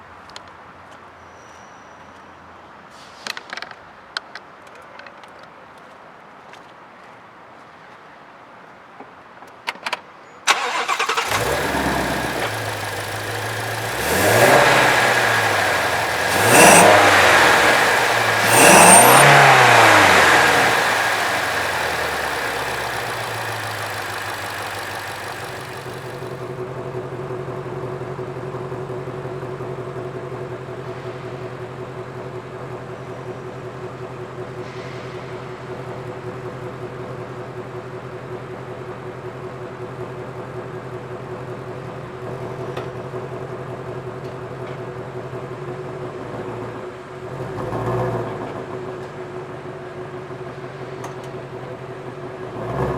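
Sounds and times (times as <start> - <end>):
car engine starting and revving: 10.5 - 26.8, 52.4 - 52.9
car engine idling: 10.5 - 34.6.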